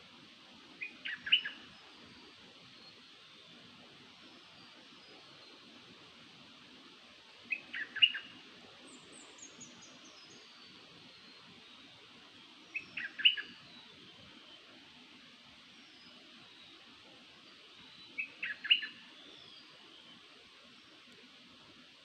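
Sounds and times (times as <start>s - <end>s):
bird song phrase: 0.8s - 1.8s, 7.5s - 11.9s, 12.7s - 14.2s, 17.8s - 20.2s.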